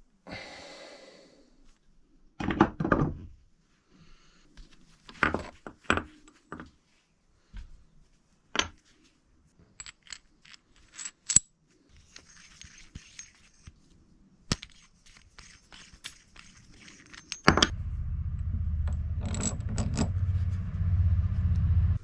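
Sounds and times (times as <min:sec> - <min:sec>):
metal parts clinking: 0:09.8 - 0:13.7, 0:14.5 - 0:17.7, 0:19.2 - 0:20.2
metal scraping: 0:15.4 - 0:22.0.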